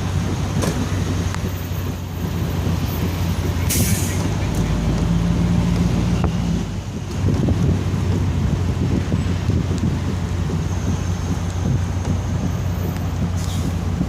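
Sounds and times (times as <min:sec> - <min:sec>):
vehicle engine humming: 0:00.0 - 0:14.0
short hiss: 0:03.7 - 0:04.3.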